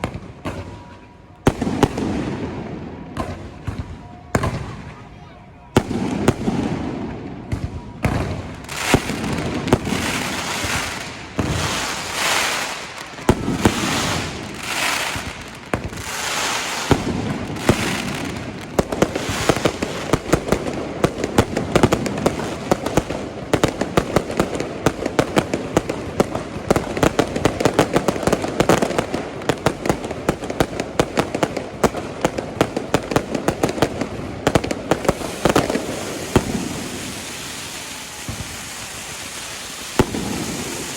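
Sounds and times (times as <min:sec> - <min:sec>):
rapid firework cracks and pops: 0:05.8 - 0:40.9
firework shells bursting: 0:34.4 - 0:40.9.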